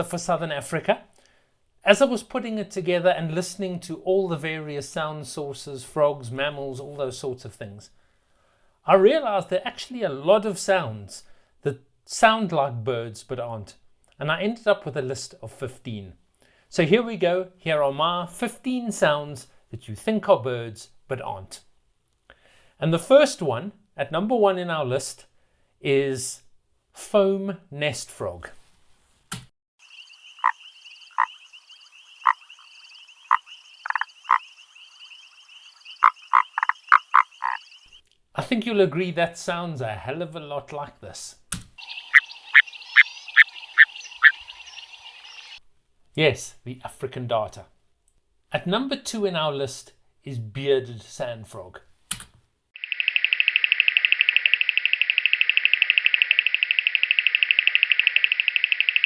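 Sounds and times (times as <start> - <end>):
frog croaking: 29.8 - 38.0, 41.8 - 45.6, 52.8 - 59.0.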